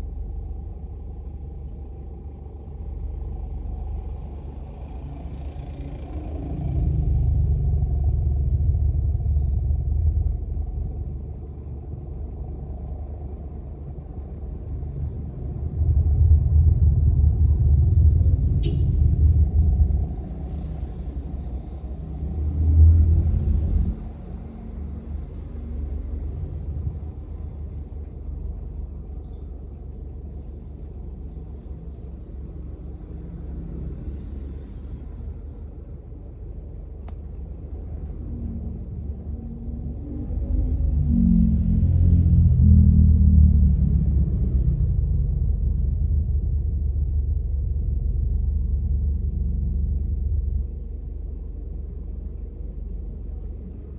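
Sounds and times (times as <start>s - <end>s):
click: 37.0s - 37.4s.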